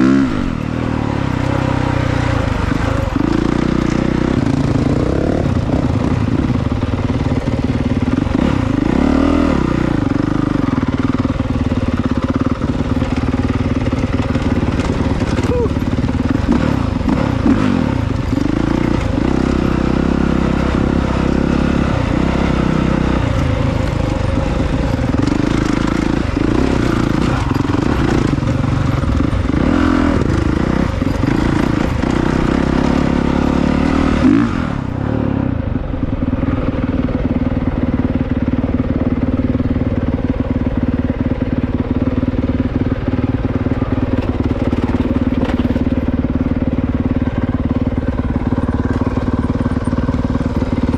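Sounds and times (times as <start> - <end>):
dirt bike engine revving: 0.0 - 35.6.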